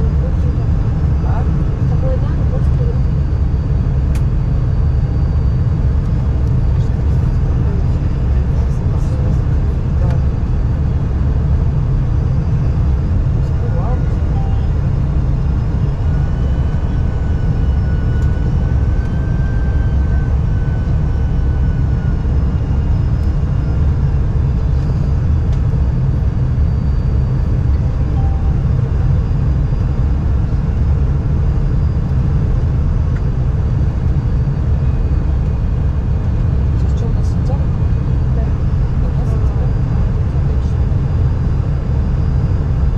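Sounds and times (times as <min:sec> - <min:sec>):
faint high whine: 0:00.0 - 0:42.9
vehicle rumble from inside: 0:00.0 - 0:42.9.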